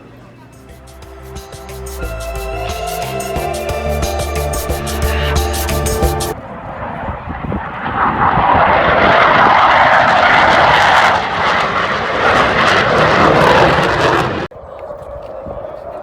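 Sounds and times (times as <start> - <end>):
aircraft engine in flight: 6.4 - 14.5.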